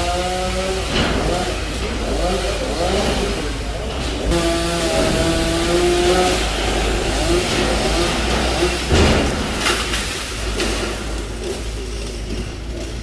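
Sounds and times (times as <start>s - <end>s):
chainsaw cutting branches: 0.0s - 13.0s
heavy thump: 3.0s - 11.2s.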